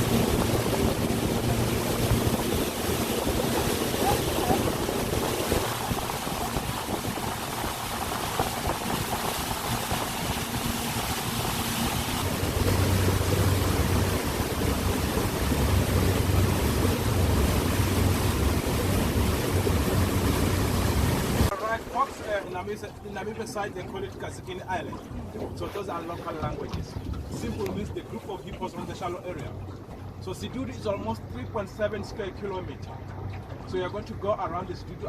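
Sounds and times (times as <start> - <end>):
wind on microphone: 0.0 - 21.5, 26.2 - 28.2
boat motor humming: 0.0 - 35.0
water rushing past hull: 0.0 - 35.0.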